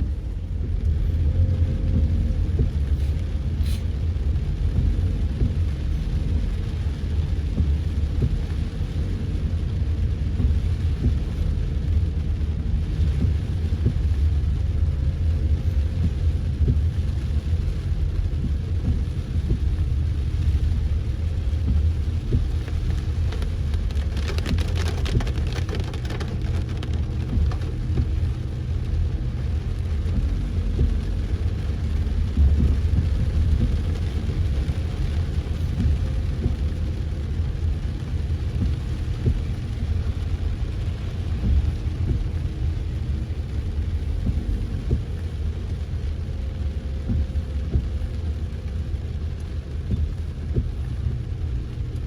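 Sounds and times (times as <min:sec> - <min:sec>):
car road and engine rumble: 0:00.0 - 0:52.0
rain hiss: 0:00.0 - 0:52.0
rapid ticks: 0:21.4 - 0:36.9.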